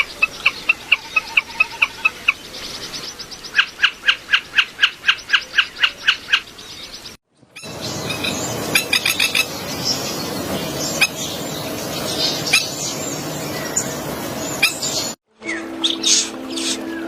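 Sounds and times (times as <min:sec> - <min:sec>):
bird chirps and calls: 0:00.0 - 0:17.0
steady rushing background: 0:07.7 - 0:15.2.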